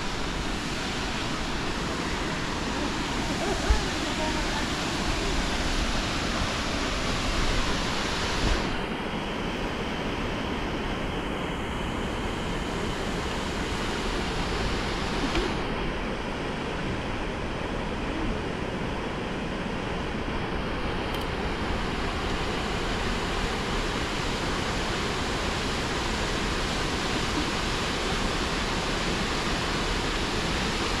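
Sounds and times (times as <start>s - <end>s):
falling water rushing: 0.0s - 8.9s.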